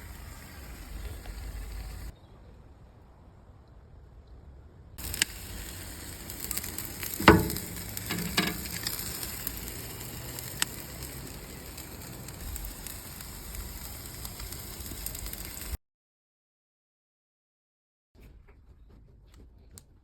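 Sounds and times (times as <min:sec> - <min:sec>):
chicken sizzling on a grill: 0:00.0 - 0:02.1, 0:05.0 - 0:15.8
loud clunk: 0:06.5 - 0:09.0.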